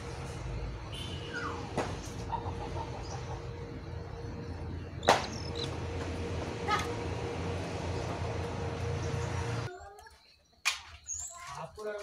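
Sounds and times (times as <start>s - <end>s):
bird calling: 0.9s - 5.8s.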